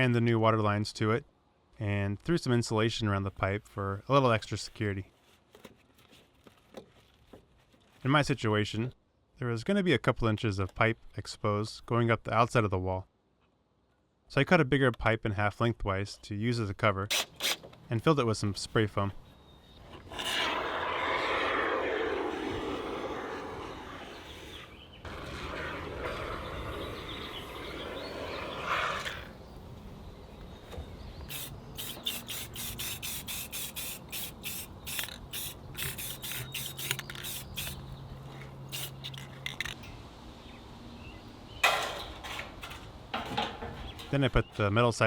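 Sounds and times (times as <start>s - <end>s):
spray foam can hissing: 31.3s - 37.8s, 38.7s - 39.2s.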